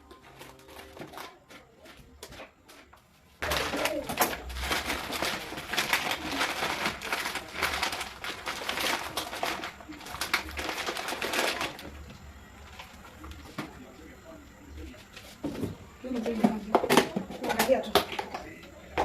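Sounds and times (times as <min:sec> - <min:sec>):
packaging rustling and crinkling: 0:00.0 - 0:02.5, 0:03.4 - 0:13.6.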